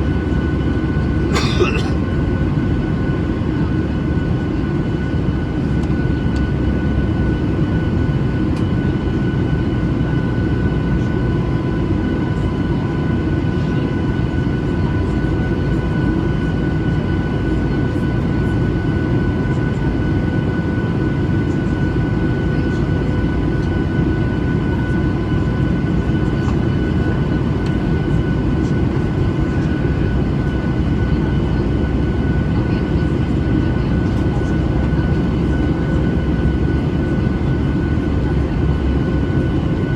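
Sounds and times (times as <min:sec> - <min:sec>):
airplane cabin rumble: 0:00.9 - 0:12.5, 0:13.1 - 0:39.9.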